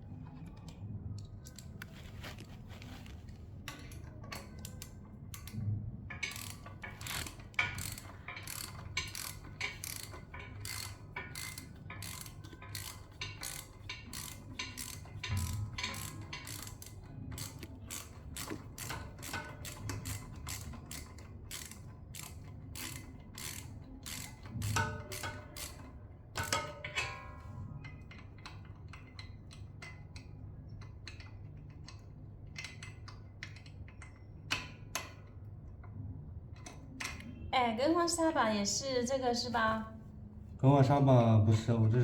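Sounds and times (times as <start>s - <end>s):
ratcheting clicks: 3.7s - 27.2s, 27.9s - 35.4s.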